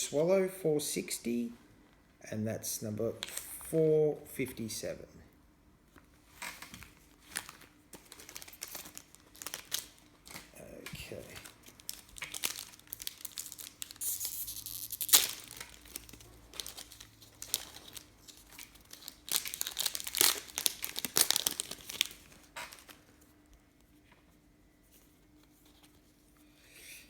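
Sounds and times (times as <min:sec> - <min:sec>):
wrapper crinkling and tearing: 0:06.4 - 0:23.2.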